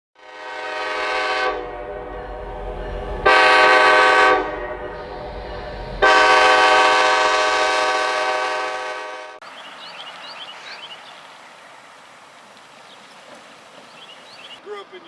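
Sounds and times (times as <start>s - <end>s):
locomotive air horn blasts: 0.2s - 9.4s.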